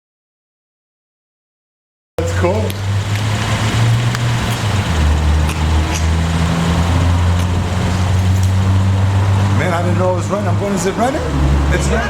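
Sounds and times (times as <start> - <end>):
car engine idling: 2.2 - 12.0.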